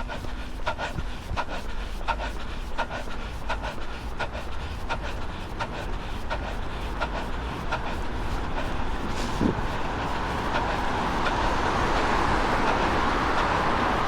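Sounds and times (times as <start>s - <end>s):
running footsteps on pavement: 0.0s - 14.0s
wind rumble on microphone: 7.6s - 14.0s.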